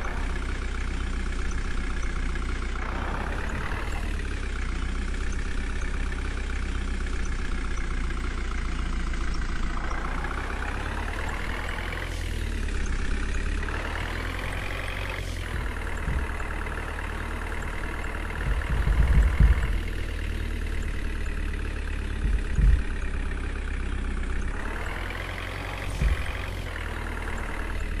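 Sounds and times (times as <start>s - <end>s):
diesel engine revving: 0.0s - 28.0s
low thuds: 15.4s - 23.6s, 25.6s - 28.0s.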